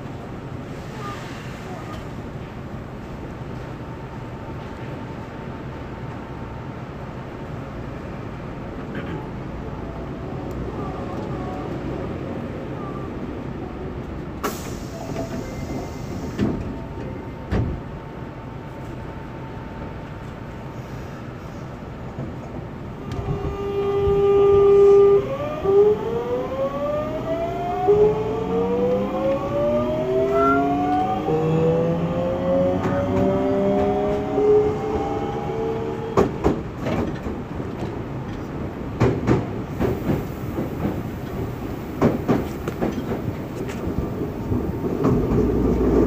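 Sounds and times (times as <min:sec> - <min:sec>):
whining tones rising in pitch: 0:24.4 - 0:36.0
wheels clicking over rail joints: 0:36.2 - 0:46.0.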